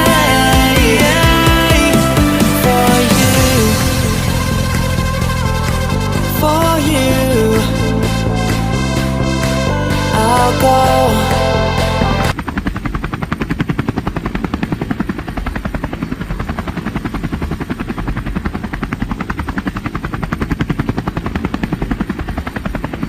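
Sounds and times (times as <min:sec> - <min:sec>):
music: 0:00.0 - 0:12.3
helicopter rotor chopping: 0:00.0 - 0:23.0.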